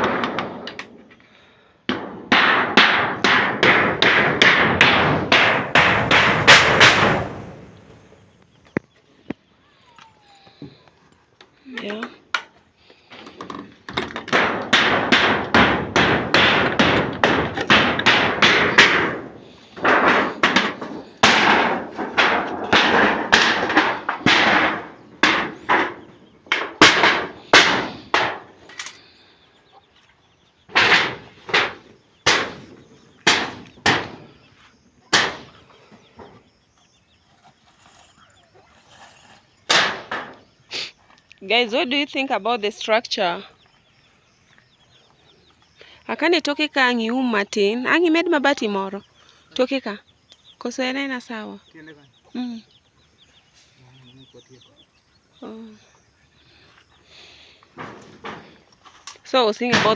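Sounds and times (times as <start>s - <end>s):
sharp knocks: 0.0s - 1.0s, 1.9s - 8.2s, 13.2s - 29.0s, 30.7s - 34.4s, 35.1s - 36.4s, 39.7s - 40.4s, 57.7s - 59.9s.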